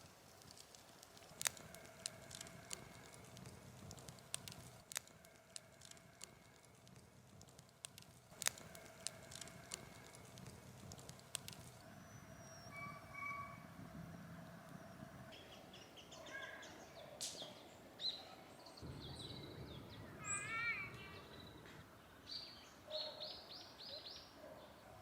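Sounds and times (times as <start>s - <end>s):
campfire crackling and popping: 0.0s - 12.6s.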